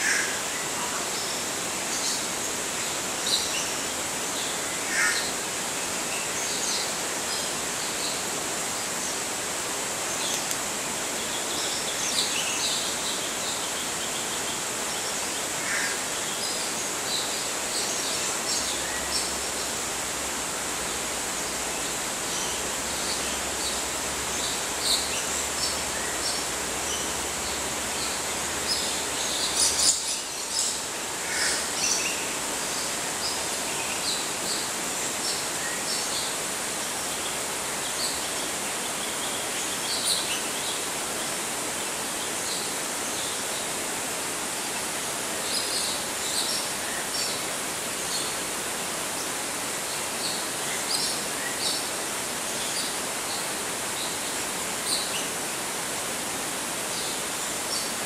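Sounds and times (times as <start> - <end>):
outdoor background hiss: 0.0 - 58.0.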